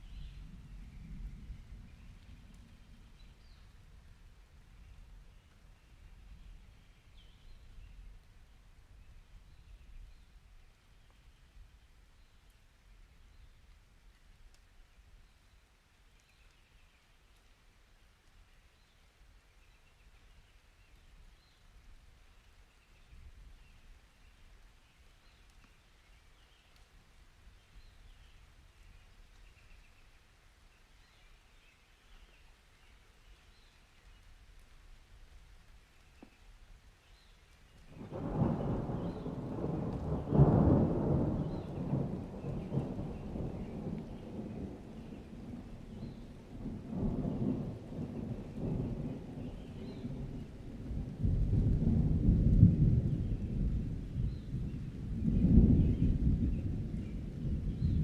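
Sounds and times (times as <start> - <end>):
rain hiss: 0.0 - 58.0
thunder rumbling: 37.8 - 58.0.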